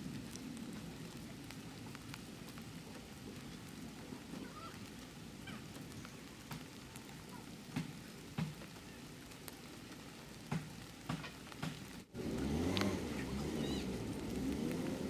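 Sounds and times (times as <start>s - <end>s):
steady rain hiss: 0.0s - 15.0s
vehicle engine running: 12.1s - 15.0s.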